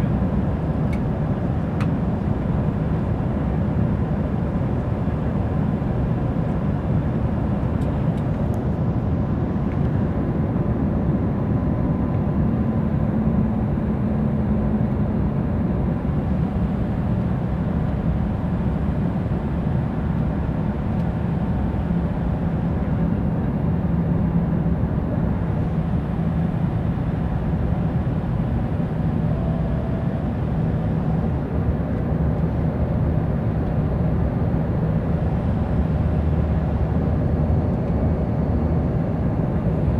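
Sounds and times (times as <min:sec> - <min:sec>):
jet airliner cabin noise: 0:00.0 - 0:39.9
faint hum: 0:25.4 - 0:32.4.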